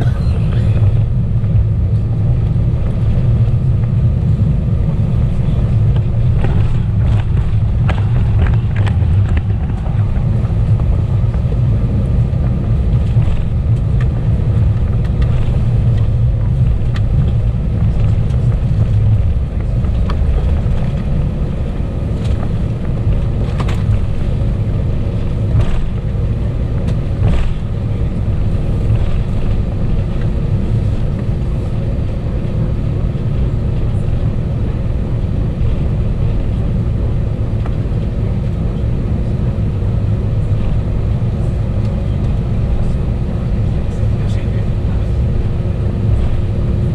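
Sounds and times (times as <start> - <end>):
jet cabin engine rumble: 0.0 - 46.9.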